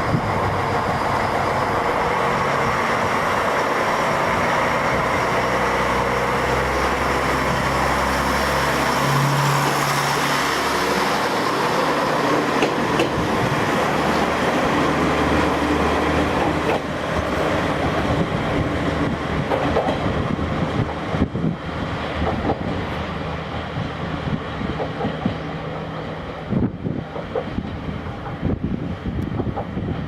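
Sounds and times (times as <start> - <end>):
railcar engine hum: 0.0 - 30.0
wheels clacking over rail joints: 3.2 - 18.2.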